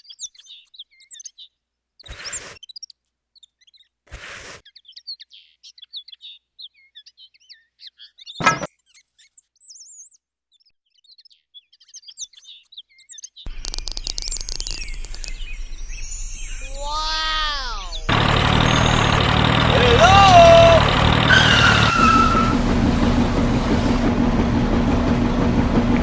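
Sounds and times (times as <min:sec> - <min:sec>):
small birds chirping: 0:13.5 - 0:24.1
small motor rattling: 0:13.5 - 0:24.1.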